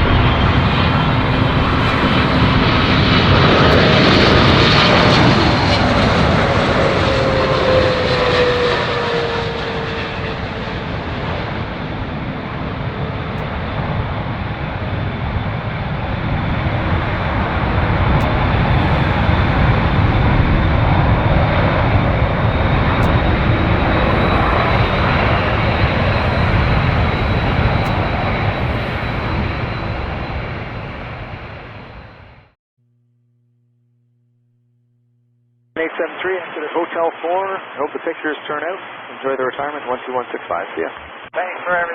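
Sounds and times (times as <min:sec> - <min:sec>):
jet engine noise: 0:00.0 - 0:32.6
high engine whine: 0:00.0 - 0:36.0.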